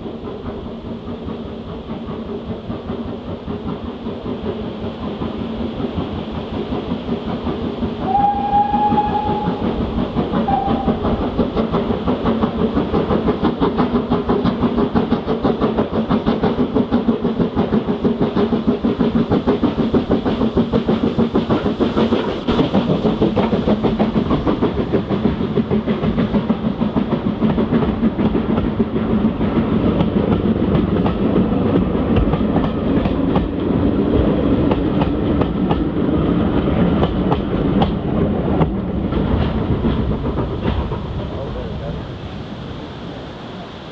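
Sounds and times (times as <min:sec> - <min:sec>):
train wheels clattering on rails: 0:00.0 - 0:42.3
steam locomotive exhaust beats: 0:00.0 - 0:43.9
steam locomotive whistle: 0:08.0 - 0:11.3.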